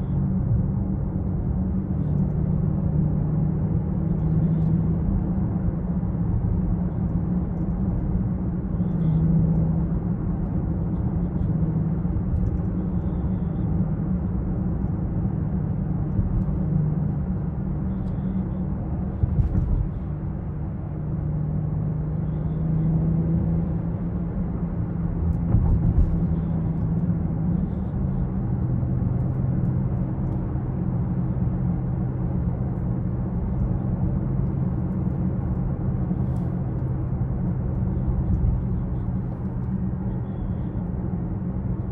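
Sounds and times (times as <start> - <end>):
car engine drone: 0.0 - 41.9.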